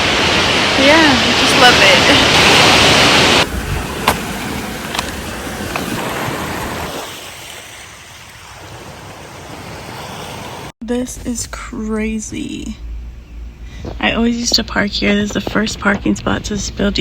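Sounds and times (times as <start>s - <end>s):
rushing water: 0.0s - 10.8s.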